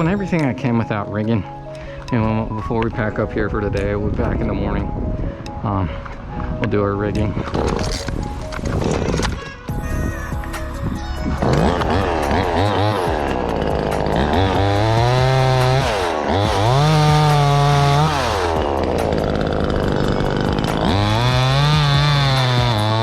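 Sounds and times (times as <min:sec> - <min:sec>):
chainsaw revving and idling: 0:10.6 - 0:23.0.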